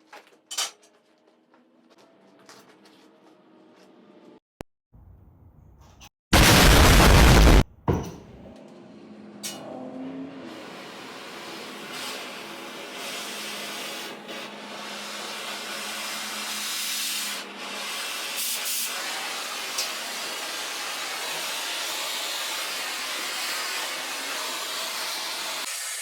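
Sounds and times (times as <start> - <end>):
cutting torch hissing: 6.4 - 7.6, 16.4 - 26.0.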